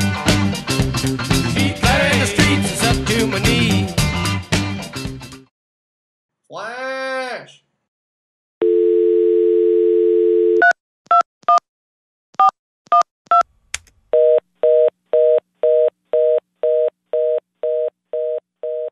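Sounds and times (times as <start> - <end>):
telephone dial tone: 8.6 - 10.7.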